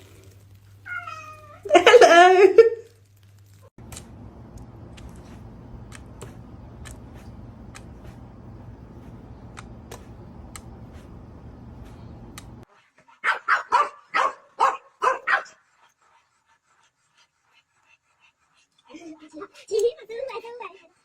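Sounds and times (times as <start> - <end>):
low background noise: 1.7 - 12.6
faint clicks: 3.5 - 12.6
dog barking: 13.2 - 15.6.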